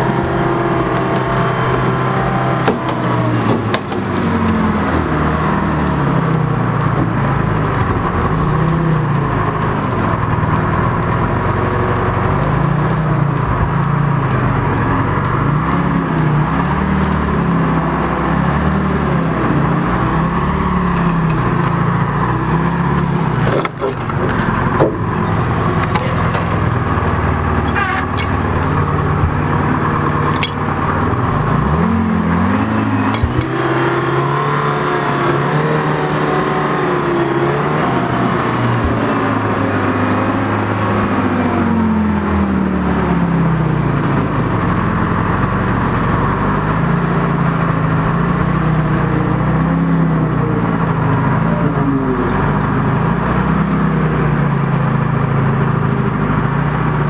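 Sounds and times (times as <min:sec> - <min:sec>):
vehicle engine revving: 0:00.0 - 0:57.0
sharp knocks: 0:02.6 - 0:04.5, 0:20.7 - 0:31.4.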